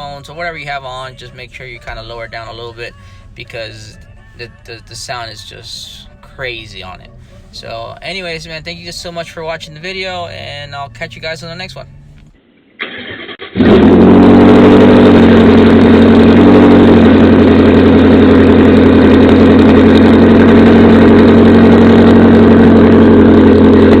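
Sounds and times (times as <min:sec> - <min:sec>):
loud car exhaust idling: 0:13.4 - 0:24.0.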